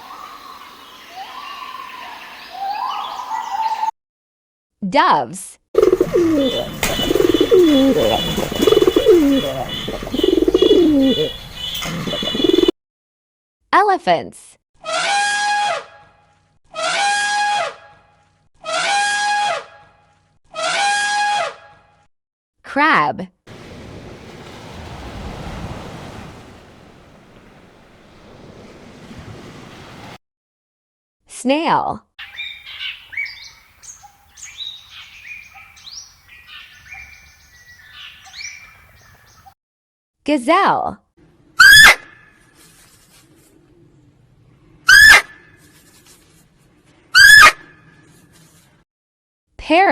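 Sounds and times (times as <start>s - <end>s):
birds chirping: 0.0s - 3.9s, 5.8s - 12.7s, 23.5s - 30.2s, 32.2s - 39.5s.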